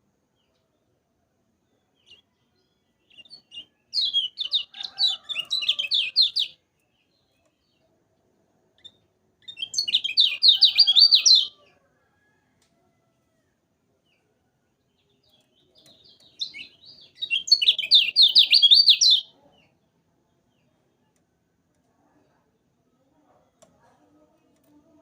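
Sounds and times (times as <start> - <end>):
bird singing rapid chattering notes: 8.8 - 11.5, 15.8 - 19.3.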